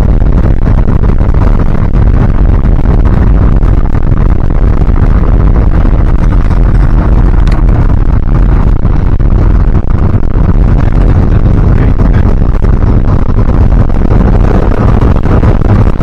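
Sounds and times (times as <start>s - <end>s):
truck engine rumbling: 0.0s - 16.0s
road noise: 4.6s - 16.0s.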